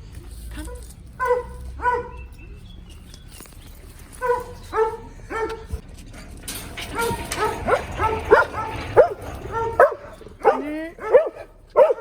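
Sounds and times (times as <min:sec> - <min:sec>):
dog yipping: 0:00.5 - 0:02.7, 0:04.1 - 0:05.8, 0:06.9 - 0:12.0.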